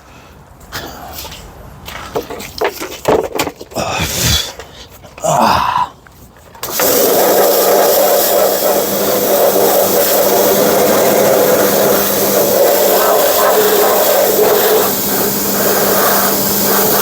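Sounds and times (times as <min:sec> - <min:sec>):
pressure washer spray hiss: 0:06.6 - 0:17.0
motor hum: 0:06.7 - 0:17.0.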